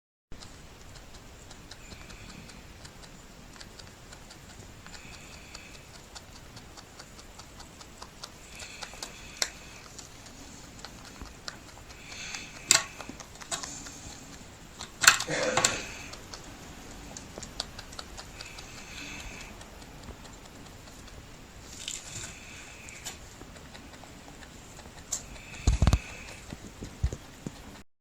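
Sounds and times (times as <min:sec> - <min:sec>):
rabbit clicking: 0:00.4 - 0:27.8
faint scratchy noises: 0:00.6 - 0:27.8.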